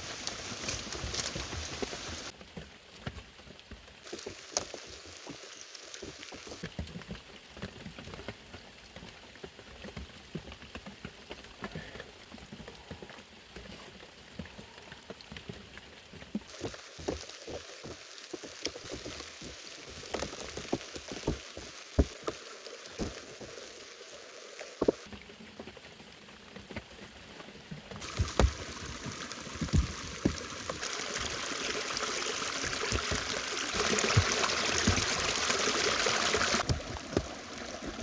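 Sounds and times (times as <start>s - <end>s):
heavy rain falling: 0.0s - 2.3s, 28.0s - 38.0s.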